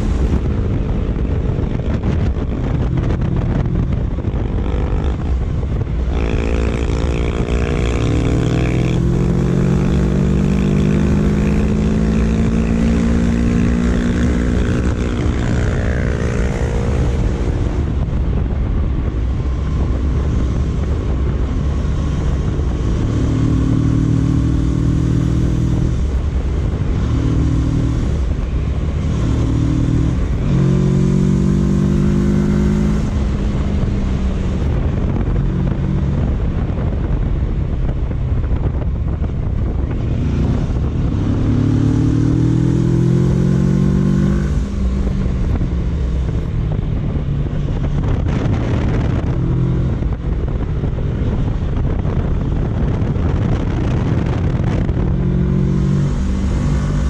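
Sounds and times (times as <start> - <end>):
motorcycle engine revving: 0.0 - 57.0
wind noise: 0.0 - 57.0.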